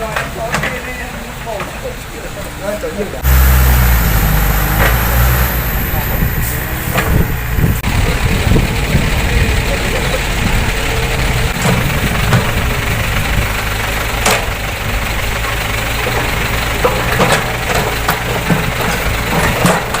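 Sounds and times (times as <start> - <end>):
diesel engine idling: 3.2 - 11.3, 11.9 - 17.2.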